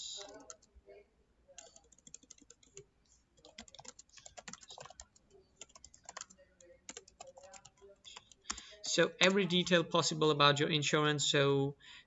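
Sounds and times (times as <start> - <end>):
computer keyboard typing: 0.0 - 0.7, 1.6 - 9.8.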